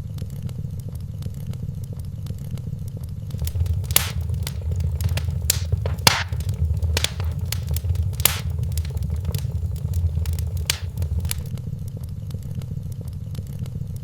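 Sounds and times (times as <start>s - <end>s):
fire flames rumbling: 3.3s - 11.5s
wood fire crackling and popping: 3.3s - 11.5s.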